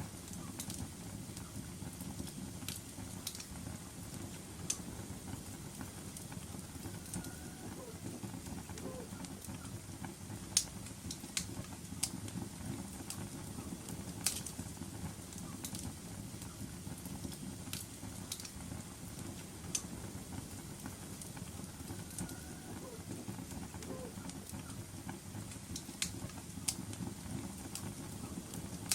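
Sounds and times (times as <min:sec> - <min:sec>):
fire crackles and pops: 0:00.0 - 0:28.9
low rumble of flames: 0:00.0 - 0:28.9.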